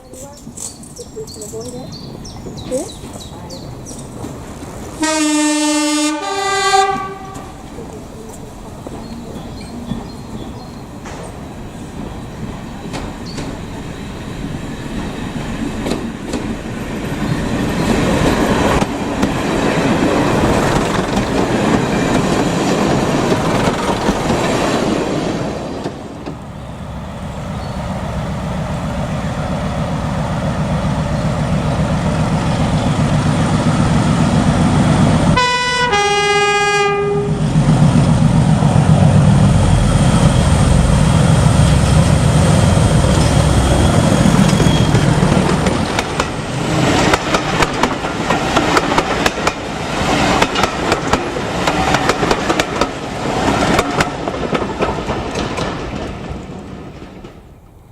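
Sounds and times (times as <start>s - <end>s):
diesel train engine running: 0.0s - 57.9s
train wheel and rail noise: 0.0s - 57.9s
two-tone train horn: 5.0s - 7.6s, 35.3s - 37.5s.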